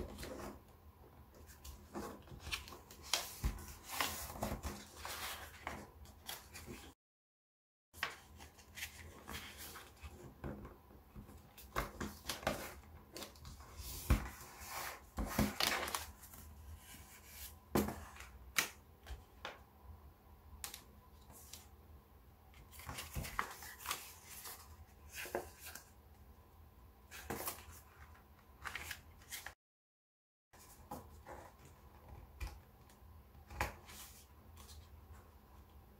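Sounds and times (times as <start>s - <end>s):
paper rustling and crackling: 11.5s - 17.2s, 22.6s - 25.9s.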